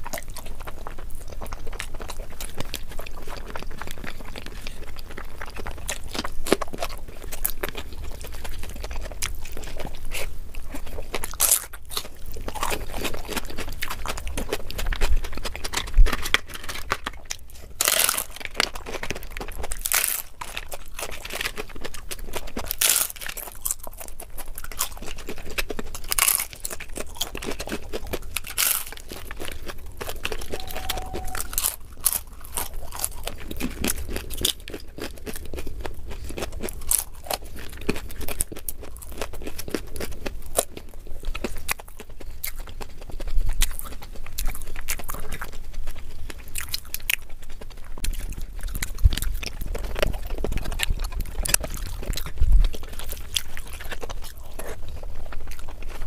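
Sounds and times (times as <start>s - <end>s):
chewing crisp food crunches: 0.0s - 56.0s.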